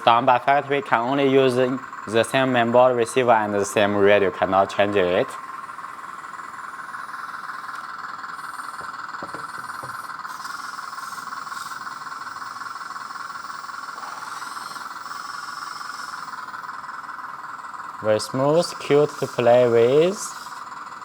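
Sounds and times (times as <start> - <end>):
hydraulic pump whining: 0.0 - 21.0
hydraulic valve hiss: 5.0 - 21.0.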